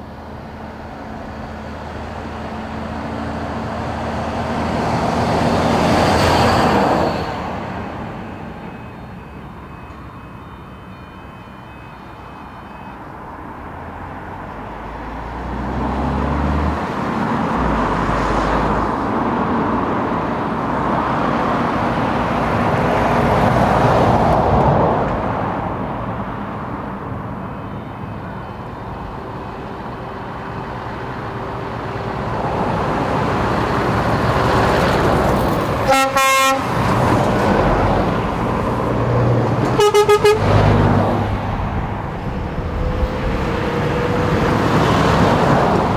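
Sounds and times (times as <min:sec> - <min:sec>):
heavy truck engines running: 0:00.0 - 0:45.9
truck horn blasts: 0:34.5 - 0:37.5, 0:39.6 - 0:45.8.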